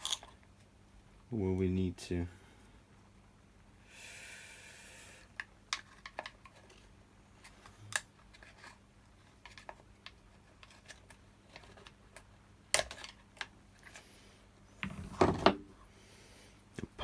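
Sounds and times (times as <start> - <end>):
plastic parts clicking and tapping: 5.4 - 6.8.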